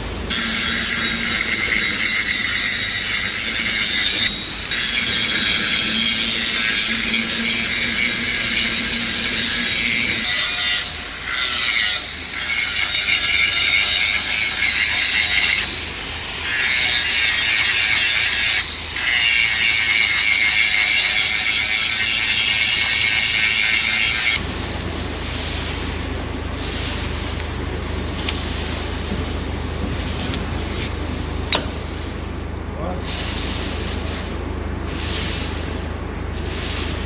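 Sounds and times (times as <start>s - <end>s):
power tool whining: 0.3s - 24.4s.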